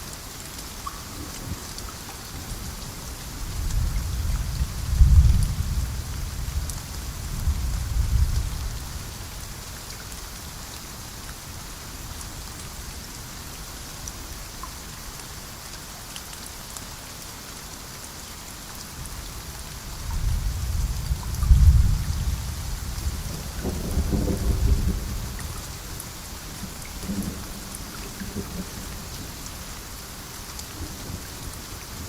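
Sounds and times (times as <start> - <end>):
steady rain: 0.0 - 32.0
thunder rumbling: 3.6 - 8.7, 20.2 - 29.1.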